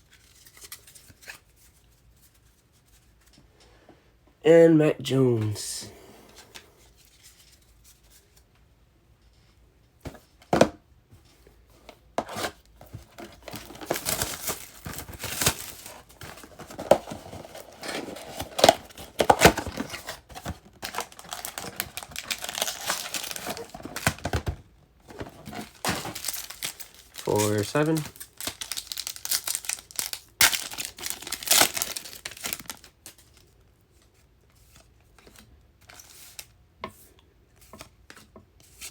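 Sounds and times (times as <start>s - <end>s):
plastic wrapping crinkling and tearing: 13.1s - 24.4s, 25.1s - 33.5s.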